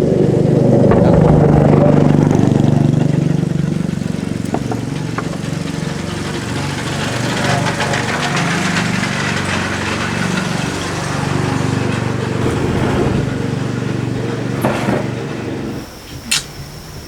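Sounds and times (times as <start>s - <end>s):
small engine running: 0.0s - 17.0s
insects chirping: 12.1s - 17.0s
sharp click: 16.3s - 16.6s.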